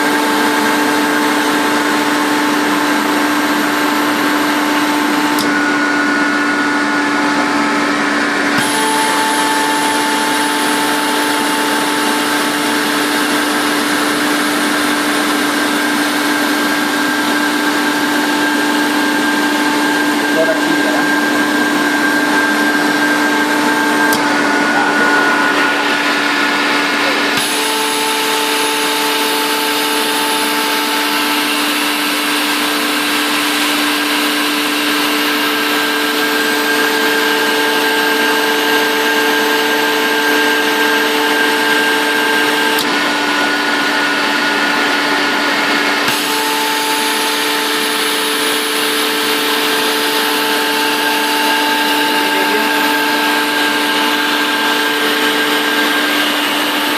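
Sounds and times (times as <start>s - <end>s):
air compressor humming: 0.0s - 56.9s
loud compressor hiss: 18.9s - 33.9s, 46.2s - 56.9s.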